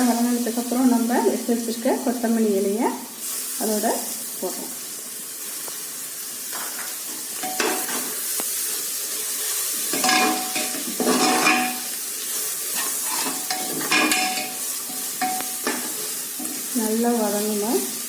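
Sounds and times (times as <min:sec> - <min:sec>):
food sizzling in hot oil: 0:00.0 - 0:18.0
spoon scraping metal pot: 0:09.9 - 0:11.9, 0:12.7 - 0:16.5.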